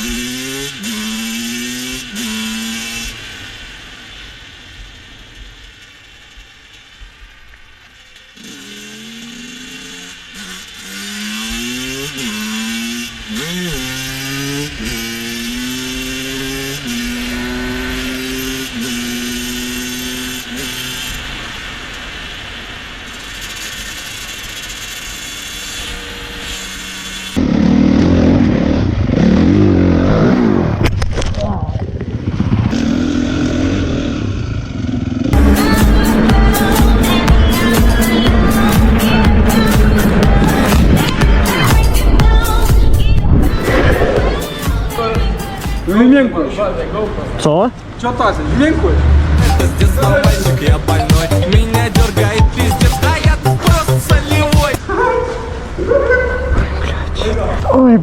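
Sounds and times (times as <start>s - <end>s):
motorcycle engine shifting gears: 0.0s - 3.7s, 5.3s - 45.0s
loud rough noise: 8.3s - 45.7s, 48.3s - 54.8s.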